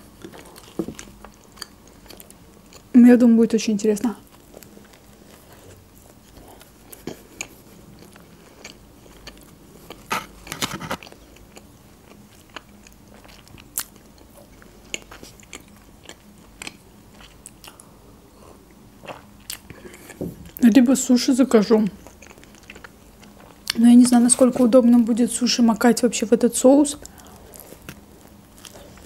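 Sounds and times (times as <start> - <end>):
chewing a wrap: 4.2 - 17.9, 18.7 - 20.6, 21.9 - 24.3, 27.0 - 29.0.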